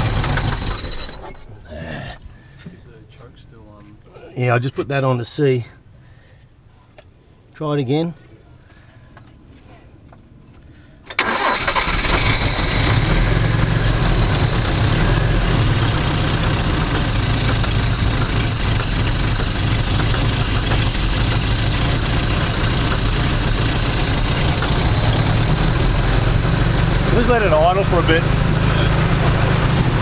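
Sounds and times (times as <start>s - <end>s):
petrol engine starting and idling: 0.0s - 1.4s, 11.1s - 30.0s.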